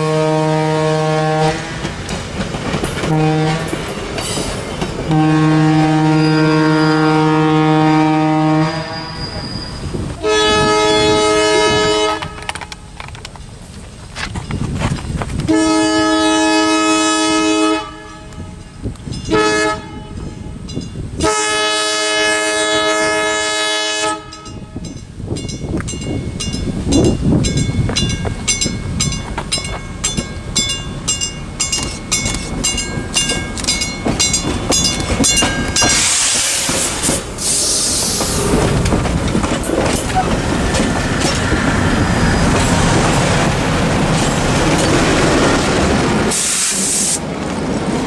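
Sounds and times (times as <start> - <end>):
train horn blasts: 0.0 - 1.9, 3.1 - 3.8, 5.1 - 9.4, 10.2 - 12.6, 15.5 - 18.6, 19.3 - 20.6, 21.2 - 24.8
wheels clacking over rail joints: 1.2 - 6.2, 11.7 - 15.8, 24.4 - 46.4
locomotive bell ringing: 2.9 - 5.3, 18.0 - 21.5, 24.2 - 36.2, 39.6 - 45.6
locomotive passing with loud rush: 25.1 - 48.0.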